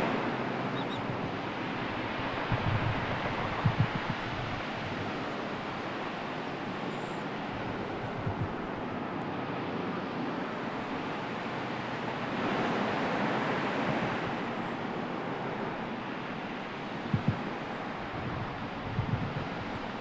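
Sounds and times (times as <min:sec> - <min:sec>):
sea waves washing in: 0:00.0 - 0:20.0
wind thumps on microphone: 0:01.9 - 0:05.1, 0:08.1 - 0:08.6, 0:17.1 - 0:19.9.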